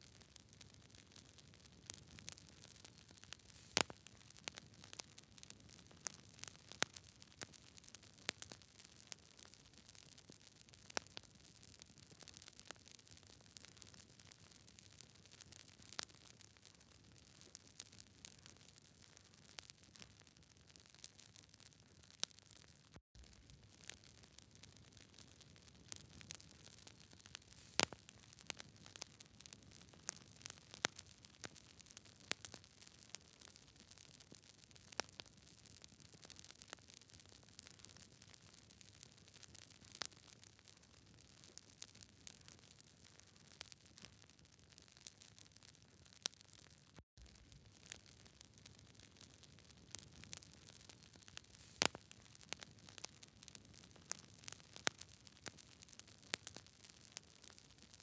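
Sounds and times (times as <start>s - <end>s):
campfire crackling and popping: 0.0s - 58.0s
soft fire hiss: 3.2s - 4.1s, 27.2s - 28.3s, 51.4s - 52.2s.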